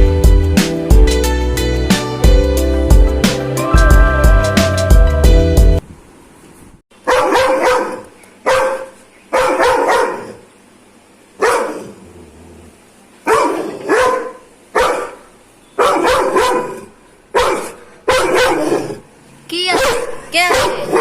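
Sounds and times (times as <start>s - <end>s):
dog barking aggressively: 7.0s - 10.5s, 11.4s - 12.0s, 13.2s - 19.1s, 19.7s - 21.0s.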